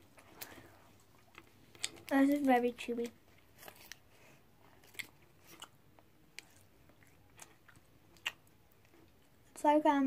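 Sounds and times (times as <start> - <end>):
person chewing with wet smacks: 0.0 - 9.6.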